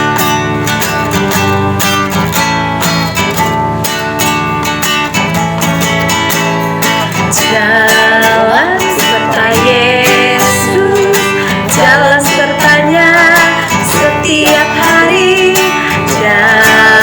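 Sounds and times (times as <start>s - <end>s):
acoustic guitar strumming: 0.0s - 17.0s
person singing: 7.2s - 17.0s.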